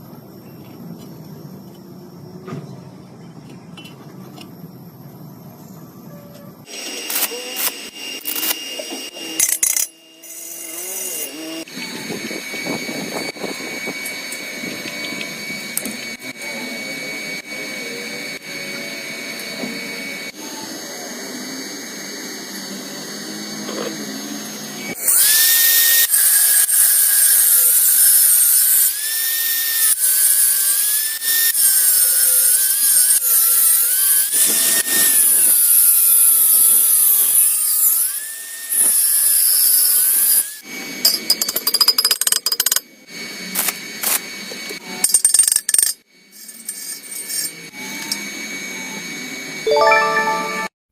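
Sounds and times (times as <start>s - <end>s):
power tool whining: 6.6s - 40.8s.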